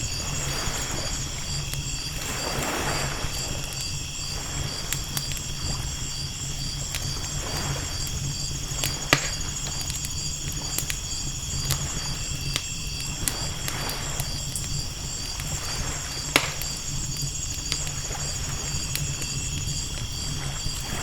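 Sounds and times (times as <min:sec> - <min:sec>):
campfire crackling and popping: 0:00.0 - 0:21.0
night insects chirping: 0:00.0 - 0:21.0
ocean waves: 0:02.1 - 0:03.7.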